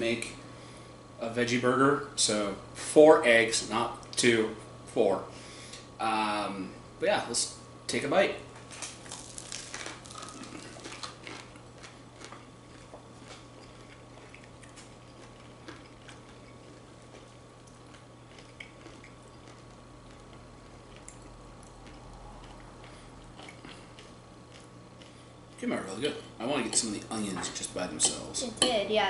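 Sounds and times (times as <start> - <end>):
steady low hum: 0.0 - 29.0
people chewing: 9.0 - 25.6.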